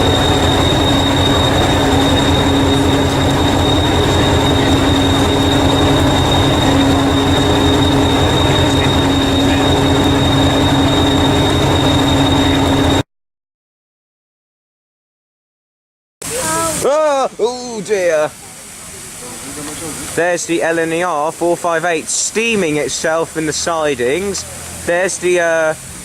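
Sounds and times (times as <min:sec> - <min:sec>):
constant high whine: 0:00.0 - 0:13.0
steam locomotive hiss and rumble: 0:00.0 - 0:13.0, 0:16.2 - 0:26.0.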